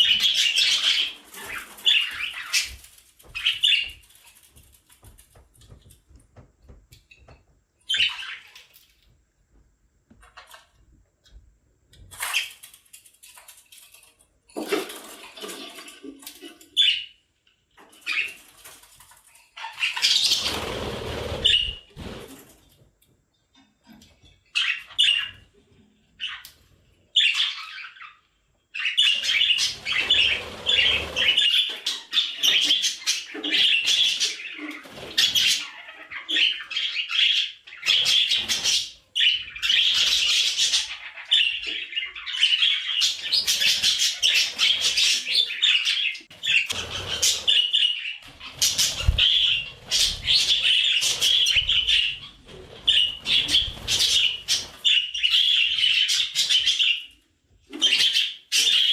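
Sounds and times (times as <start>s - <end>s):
budgerigars chattering and warbling: 0.0s - 4.0s, 28.8s - 57.1s.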